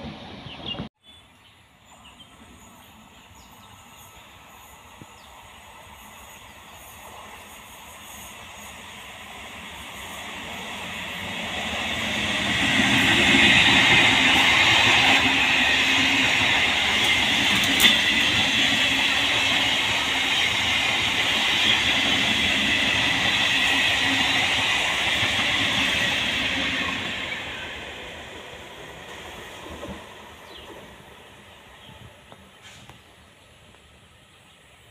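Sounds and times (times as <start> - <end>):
passenger train passing: 0.0 - 0.9, 1.5 - 34.9.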